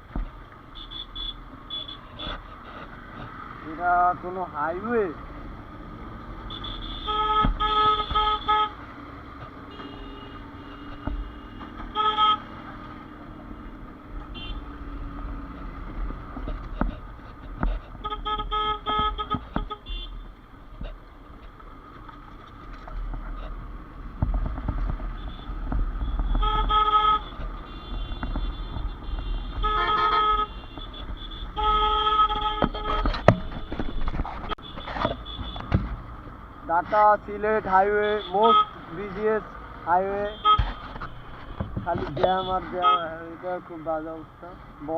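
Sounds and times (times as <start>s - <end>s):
road traffic: 0.0s - 44.9s
vehicle horn short beeps: 9.7s - 12.4s.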